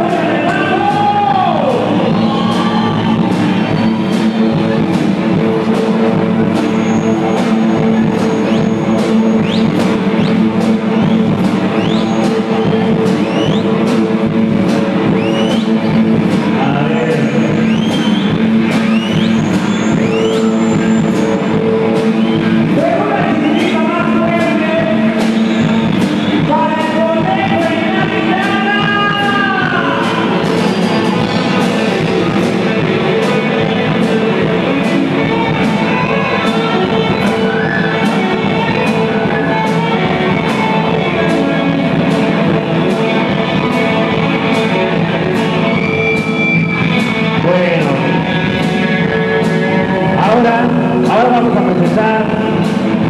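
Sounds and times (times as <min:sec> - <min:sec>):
electric guitar: 0:00.0 - 0:53.0
steady drum beat: 0:00.0 - 0:53.0
person singing: 0:16.4 - 0:17.9.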